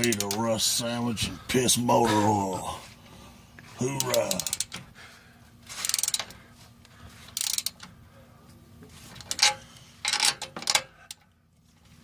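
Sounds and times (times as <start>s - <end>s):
metallic clicking and scraping: 0.0s - 0.6s, 5.7s - 6.4s, 7.2s - 8.0s, 8.8s - 11.4s.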